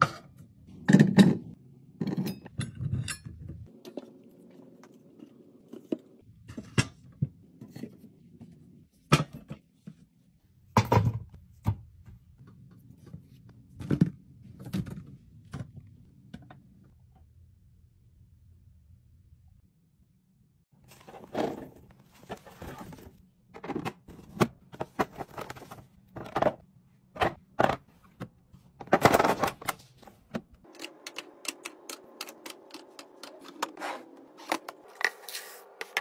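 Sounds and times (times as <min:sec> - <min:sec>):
containers and packages clattering: 0:20.8 - 0:26.6, 0:28.8 - 0:35.2.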